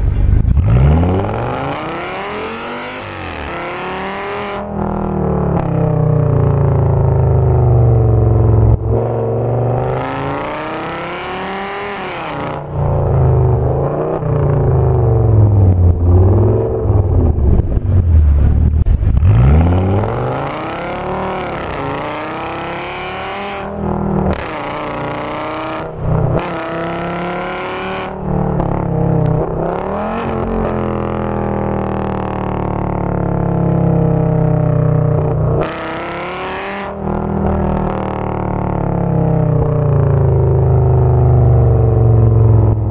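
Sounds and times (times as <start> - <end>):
car engine accelerating hard: 0.0 - 42.9.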